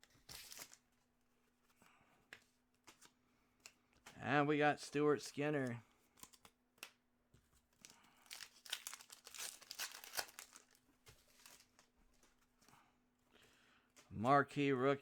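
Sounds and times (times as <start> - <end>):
foil wrapper crinkling and tearing: 0.1 - 0.9, 7.8 - 11.9.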